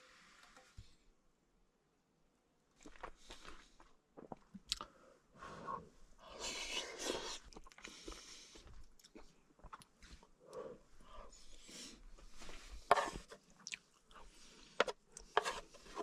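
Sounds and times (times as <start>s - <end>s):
person chewing: 2.8s - 4.9s, 6.5s - 10.0s, 13.5s - 14.4s
spoon clicks and scrapes: 14.8s - 16.0s.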